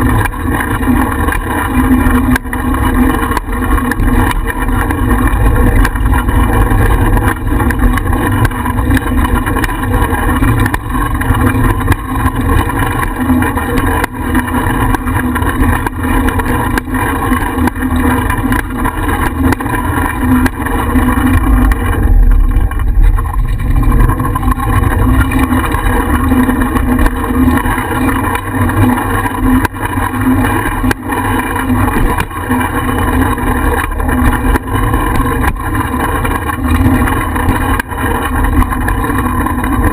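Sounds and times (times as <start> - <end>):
bicycle clicks and rattles: 0.0 - 39.9
road rumble: 0.0 - 39.9.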